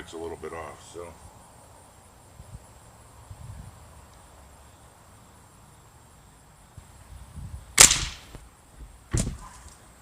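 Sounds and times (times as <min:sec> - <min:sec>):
crickets chirping: 0:00.0 - 0:10.0
air rifle firing: 0:07.8 - 0:08.4.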